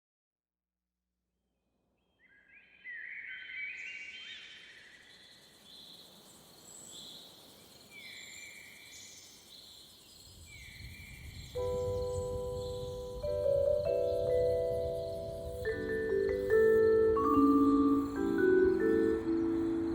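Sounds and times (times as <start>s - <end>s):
birds chirping and whistling: 2.3s - 19.9s
held musical chord: 11.6s - 19.9s.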